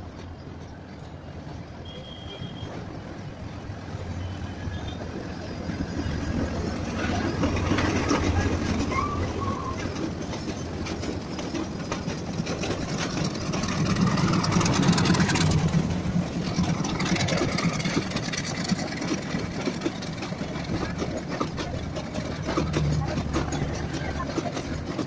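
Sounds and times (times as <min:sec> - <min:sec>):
diesel locomotive engine hum: 0:00.0 - 0:25.0
passenger train rolling by: 0:00.0 - 0:25.0.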